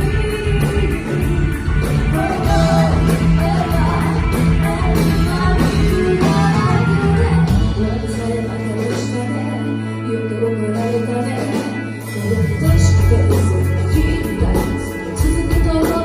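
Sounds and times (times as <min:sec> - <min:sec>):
steady drum beat: 0:00.0 - 0:08.2
live rock band playing: 0:00.0 - 0:16.0
person singing: 0:00.0 - 0:16.0.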